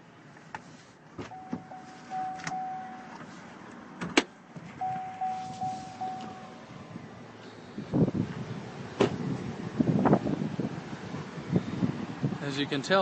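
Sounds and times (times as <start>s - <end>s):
truck warning chime dings: 1.3s - 3.2s, 4.8s - 6.6s.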